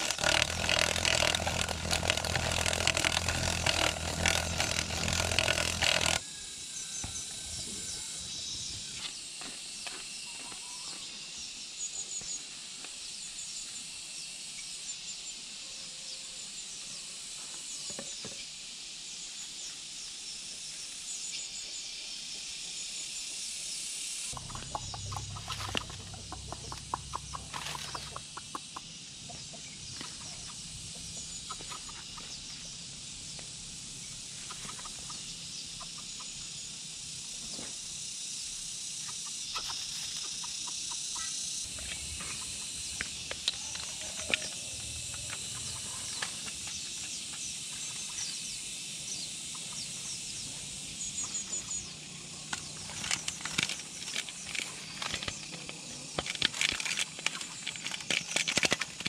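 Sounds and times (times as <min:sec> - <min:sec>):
ticking insect chorus: 0:00.0 - 0:10.2, 0:18.5 - 0:59.0
clucking bird calls: 0:24.4 - 0:32.5, 0:34.4 - 0:36.4, 0:39.0 - 0:41.4.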